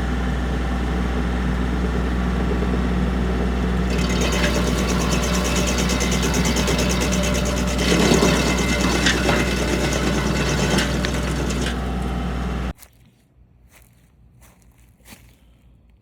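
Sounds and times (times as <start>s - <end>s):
tractor engine with rattle: 0.0s - 12.7s.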